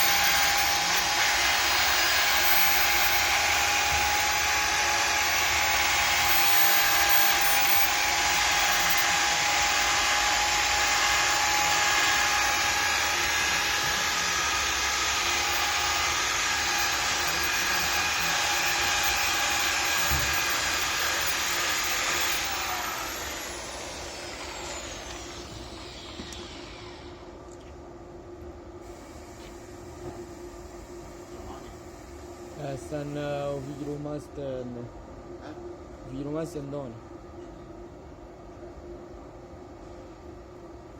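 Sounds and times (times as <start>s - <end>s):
electric tool whirring: 0.0s - 27.3s.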